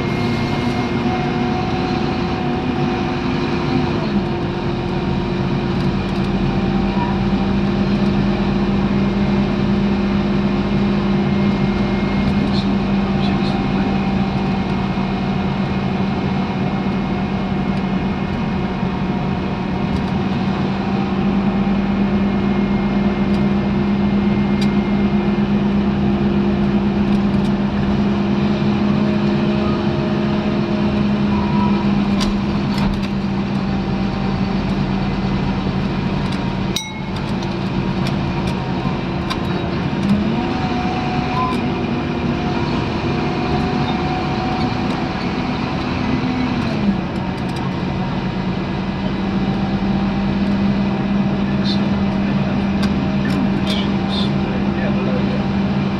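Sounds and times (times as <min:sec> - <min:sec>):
bus diesel engine humming: 0:00.0 - 0:55.9.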